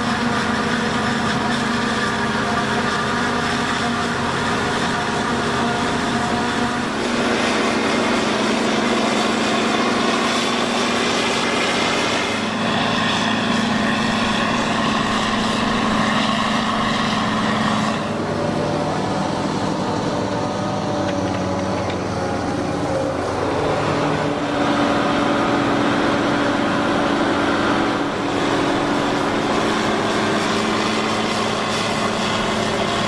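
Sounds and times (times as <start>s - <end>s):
tractor engine drone: 0.0s - 33.0s
machinery hiss: 27.8s - 33.0s.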